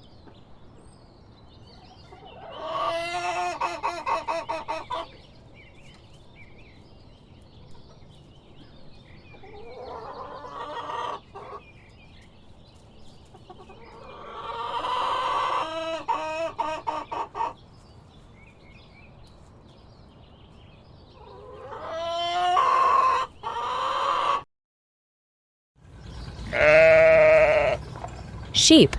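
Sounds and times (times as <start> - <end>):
hens clucking softly: 2.0 - 5.2, 9.3 - 11.7, 13.2 - 17.6, 21.2 - 24.4, 25.9 - 28.9.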